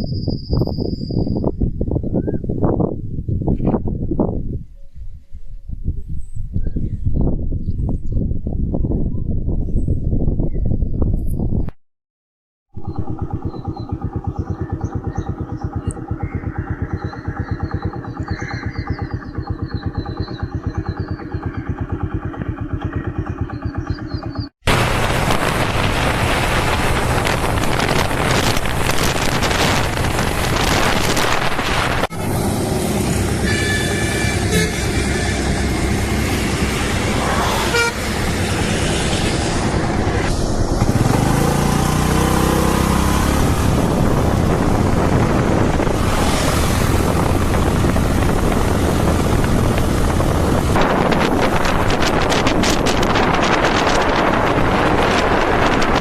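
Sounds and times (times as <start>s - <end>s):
road and wind noise: 0.0s - 11.8s, 12.7s - 56.0s
engine revving: 12.8s - 56.0s
vehicle horn: 33.1s - 36.6s, 37.2s - 38.6s.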